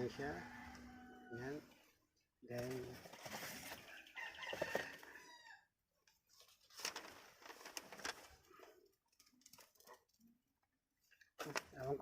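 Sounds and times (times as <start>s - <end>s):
rooster crowing: 0.0s - 1.6s, 3.9s - 5.7s.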